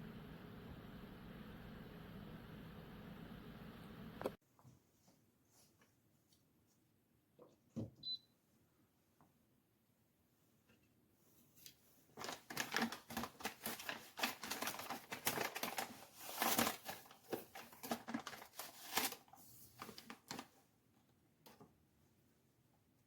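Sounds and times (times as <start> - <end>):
clicking and crinkling of handling: 10.6 - 21.8.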